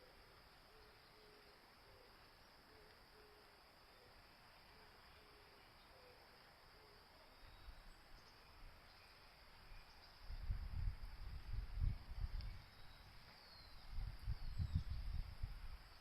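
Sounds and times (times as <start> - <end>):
insects chirring: 0.0 - 16.0
wind buffeting microphone: 10.2 - 13.0, 13.8 - 15.9.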